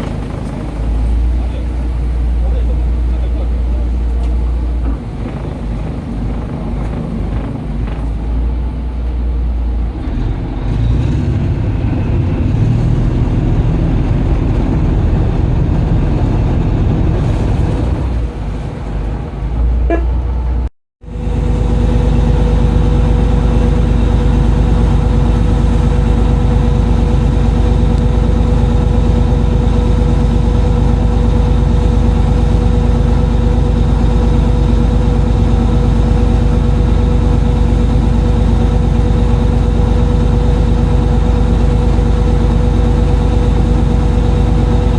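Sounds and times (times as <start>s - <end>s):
boat engine running: 0.0s - 44.9s.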